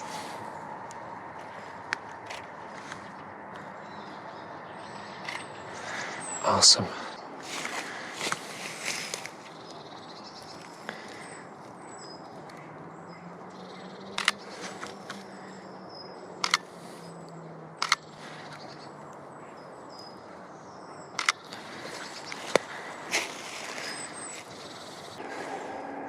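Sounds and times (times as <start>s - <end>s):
camera shutter clicks: 14.2s - 14.4s, 16.4s - 16.6s, 17.8s - 18.0s, 21.2s - 21.4s.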